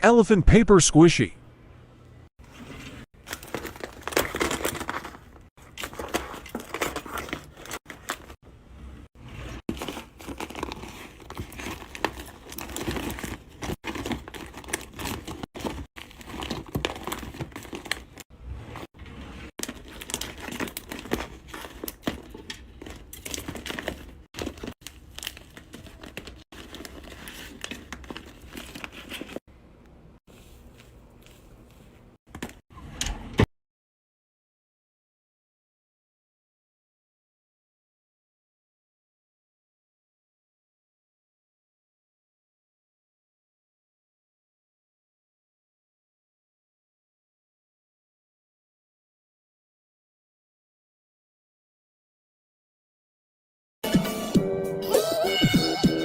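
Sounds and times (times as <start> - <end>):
taped paper crinkling: 9.7 - 18.2, 19.6 - 29.4.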